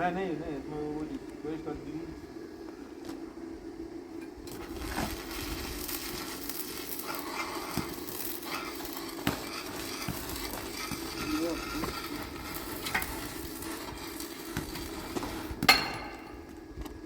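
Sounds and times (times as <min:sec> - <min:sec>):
steady low hum: 0:00.0 - 0:17.0
electric arc welding crackling: 0:04.4 - 0:16.9.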